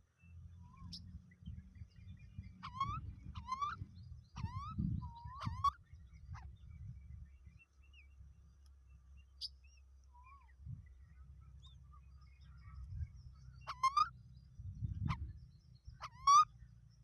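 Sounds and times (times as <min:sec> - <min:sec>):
low rumble: 0:10.2 - 0:17.0.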